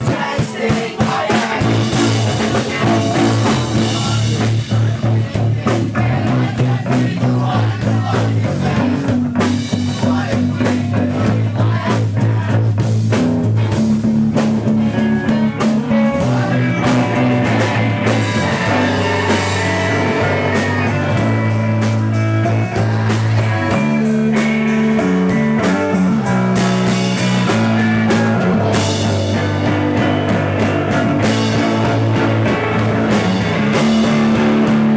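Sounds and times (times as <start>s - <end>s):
person singing: 0.0s - 9.1s, 15.3s - 30.1s
live rock band playing: 0.0s - 34.9s.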